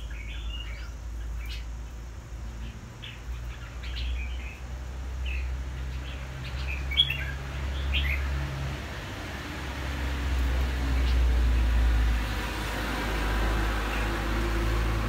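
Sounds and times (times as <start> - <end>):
bird chirping: 0.0 - 8.4.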